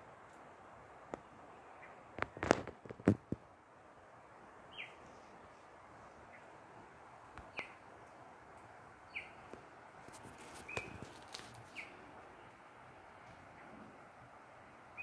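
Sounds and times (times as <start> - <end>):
steady outdoor hiss: 0.0 - 15.0
bird chirping: 4.7 - 5.6, 7.4 - 7.8, 9.1 - 9.5, 10.6 - 11.1, 11.7 - 12.5.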